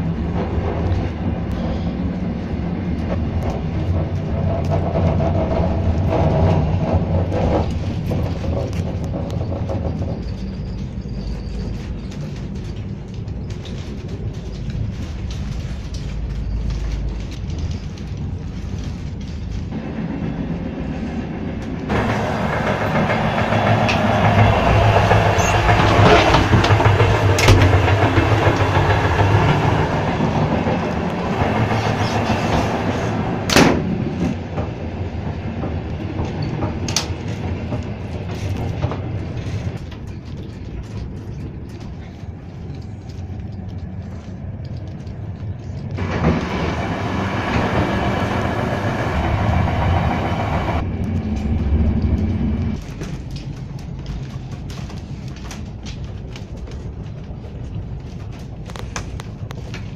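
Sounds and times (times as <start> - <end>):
train rumbling and clattering: 0.0 - 59.9
door opening: 21.9 - 39.8.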